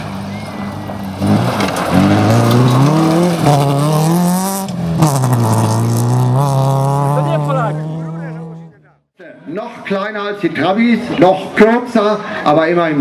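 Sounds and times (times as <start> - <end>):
car engine revving hard: 1.2 - 8.8.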